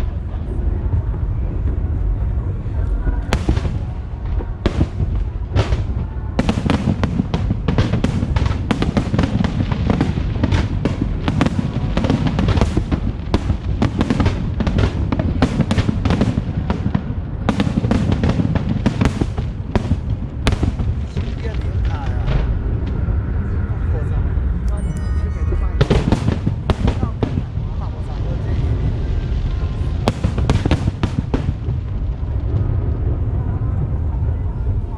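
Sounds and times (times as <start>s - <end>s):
deep rumble of explosions: 0.0s - 34.9s
fireworks bangs: 3.3s - 23.3s, 24.8s - 34.2s.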